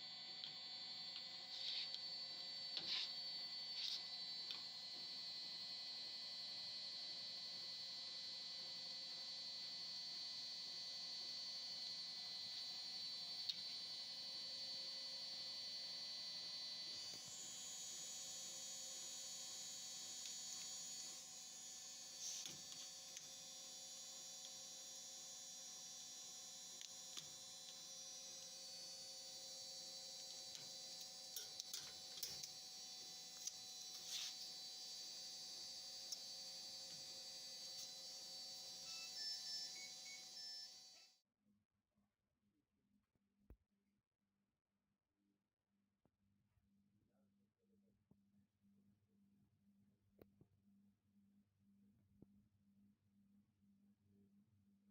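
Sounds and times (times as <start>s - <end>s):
thin high whine: 0.0s - 6.0s, 27.0s - 41.1s.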